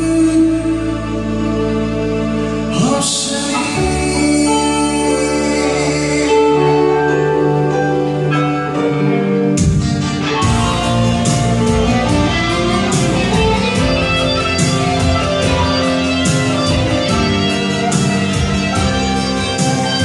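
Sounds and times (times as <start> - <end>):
electric guitars: 0.0 - 20.0
drums with cymbal hits: 9.6 - 20.0.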